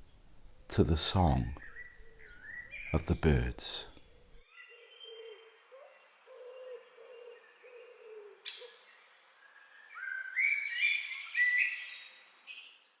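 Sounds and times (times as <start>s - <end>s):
songbird phrase of stepped notes: 0.7s - 1.9s, 2.8s - 4.0s.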